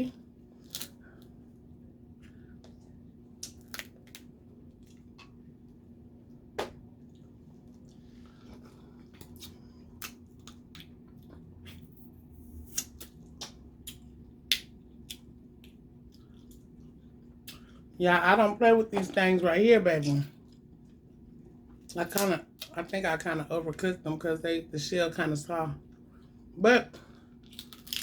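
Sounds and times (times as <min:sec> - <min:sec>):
steady low hum: 0:00.0 - 0:28.0
crab legs cracking: 0:00.6 - 0:01.3, 0:03.4 - 0:04.3, 0:27.4 - 0:28.0.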